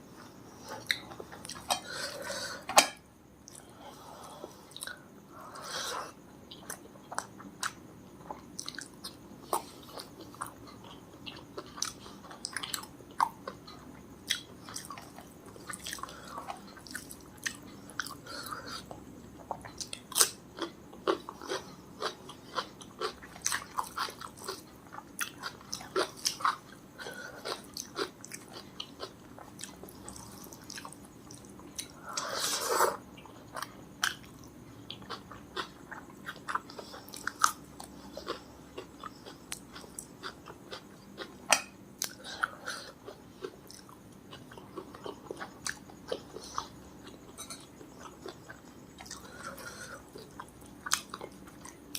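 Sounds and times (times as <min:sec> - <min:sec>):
chewing and biting food: 0:18.8 - 0:31.9.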